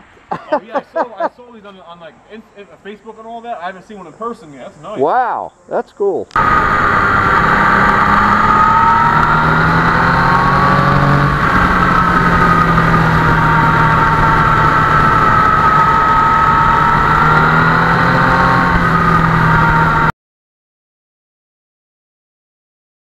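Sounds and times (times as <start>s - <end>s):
motorcycle engine running: 6.4s - 20.1s.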